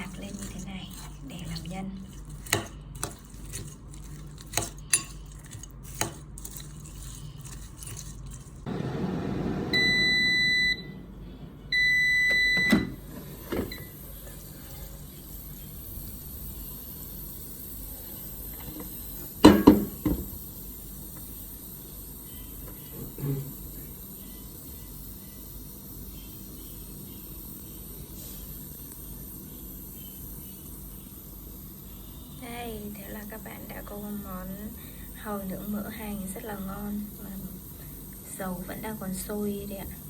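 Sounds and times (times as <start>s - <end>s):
fan hissing: 0.0s - 6.4s, 8.5s - 40.0s
utensils clinking: 0.0s - 8.7s
air fryer beeping: 8.7s - 15.9s.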